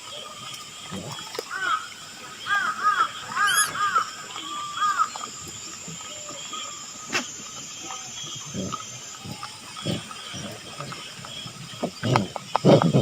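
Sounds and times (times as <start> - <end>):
monkeys calling: 2.5 - 5.1.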